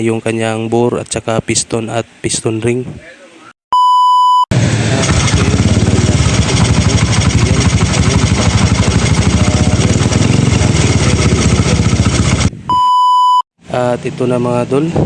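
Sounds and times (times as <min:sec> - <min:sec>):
short beep tone: 0:03.7 - 0:04.4, 0:12.7 - 0:13.4
engine knocking and rattling: 0:04.5 - 0:12.5
motorcycle engine running: 0:04.5 - 0:12.5.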